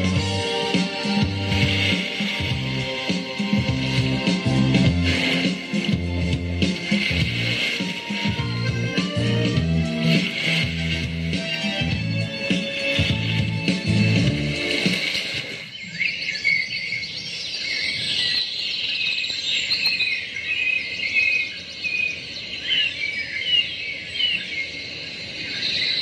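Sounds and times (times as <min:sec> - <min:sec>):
guitar music: 0:00.0 - 0:14.8
birds chirping: 0:00.0 - 0:26.0.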